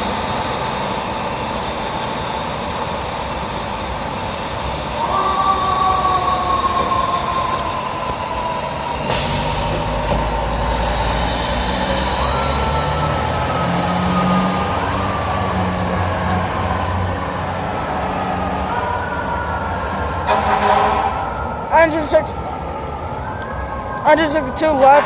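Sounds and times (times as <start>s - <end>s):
diesel engine rumble: 0.0s - 20.1s
fire engine siren: 0.0s - 25.0s
sudden noisy burst: 9.0s - 15.6s.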